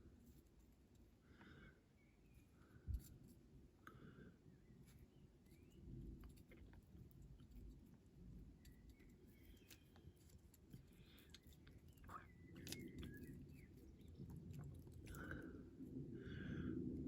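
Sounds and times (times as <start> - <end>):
faint small clicks: 8.6 - 15.4.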